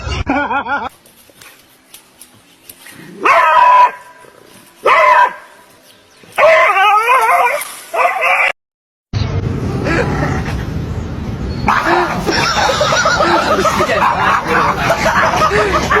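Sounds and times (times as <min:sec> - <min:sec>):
dog howling and barking: 0:03.2 - 0:05.5, 0:06.4 - 0:08.6, 0:11.7 - 0:16.0.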